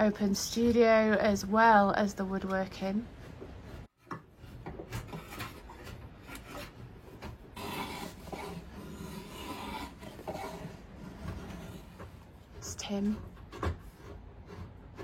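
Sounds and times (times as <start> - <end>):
hand tool shaving wood: 3.6 - 15.0.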